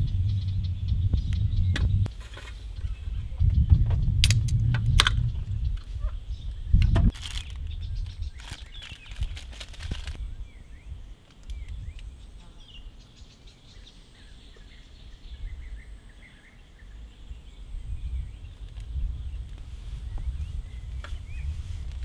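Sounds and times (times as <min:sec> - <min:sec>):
low wind rumble: 0:00.0 - 0:22.0
small birds chirping: 0:00.0 - 0:22.0
rustling and clicking: 0:06.8 - 0:10.2.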